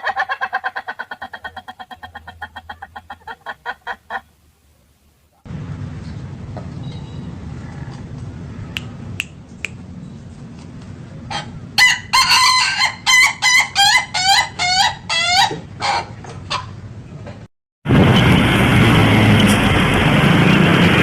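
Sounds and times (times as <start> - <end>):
rooster crowing: 11.8 - 15.5.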